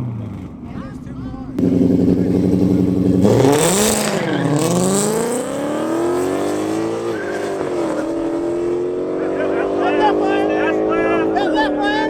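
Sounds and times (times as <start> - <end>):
car engine accelerating through gears: 1.6 - 11.9
tire squeal: 6.7 - 8.3.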